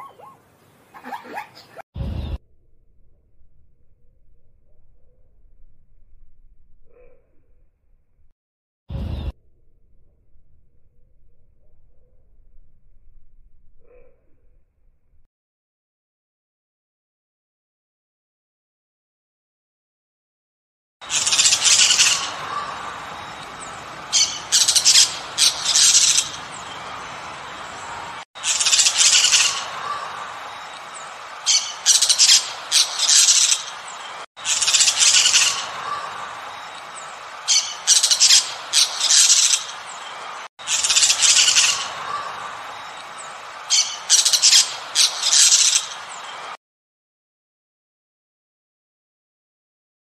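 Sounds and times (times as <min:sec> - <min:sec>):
parrot squawking: 0:00.0 - 0:01.8, 0:21.0 - 0:30.4, 0:31.4 - 0:33.8, 0:34.4 - 0:36.4, 0:37.4 - 0:39.8, 0:40.6 - 0:42.6, 0:43.7 - 0:46.0.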